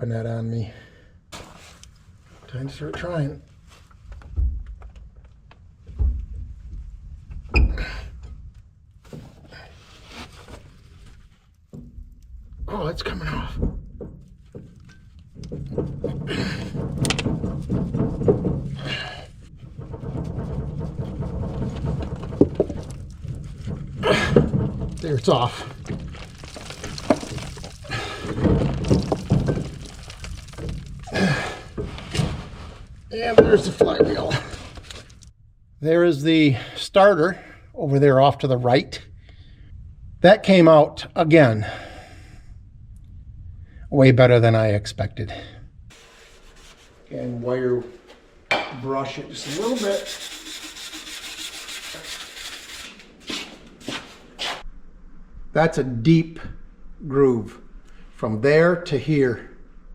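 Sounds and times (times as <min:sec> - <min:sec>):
metal scraping: 0:09.2 - 0:35.4, 0:45.4 - 0:54.7
heavy metal parts clunking: 0:11.6 - 0:35.3
heavy metal thunks: 0:11.7 - 0:34.5.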